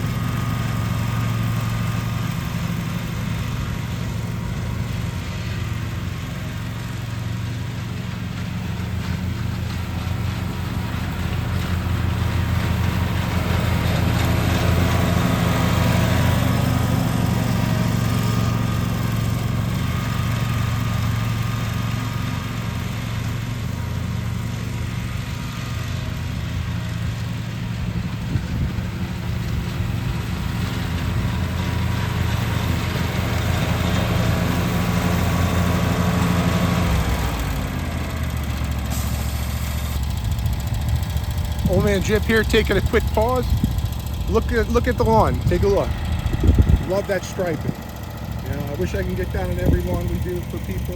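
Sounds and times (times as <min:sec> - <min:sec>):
lawn mower engine running: 0:00.0 - 0:50.9.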